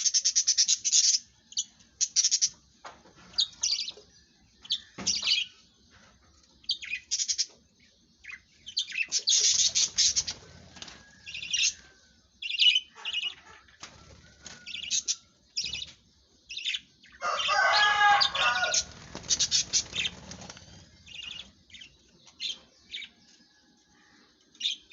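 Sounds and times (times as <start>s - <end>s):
budgerigars chirping: 8.3s - 10.4s, 12.4s - 13.6s, 18.2s - 20.4s.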